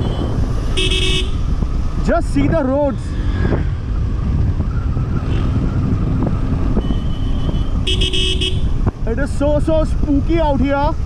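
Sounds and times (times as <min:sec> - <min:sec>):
horn honk: 0:00.0 - 0:01.4, 0:06.7 - 0:08.8
wind rush: 0:00.0 - 0:10.3
motorcycle engine: 0:00.0 - 0:11.0.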